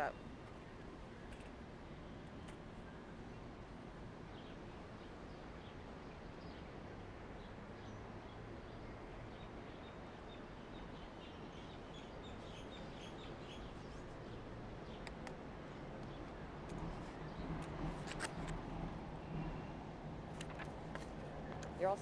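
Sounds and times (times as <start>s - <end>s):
city background hum: 0.0s - 22.0s
small birds chirping: 9.4s - 18.4s.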